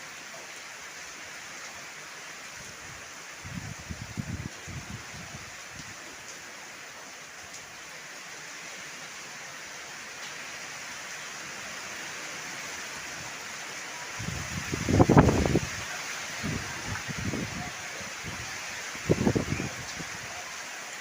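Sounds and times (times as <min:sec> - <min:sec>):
heavy rain: 0:00.0 - 0:21.0
wind buffeting microphone: 0:03.4 - 0:05.4, 0:14.2 - 0:15.8, 0:16.4 - 0:20.2.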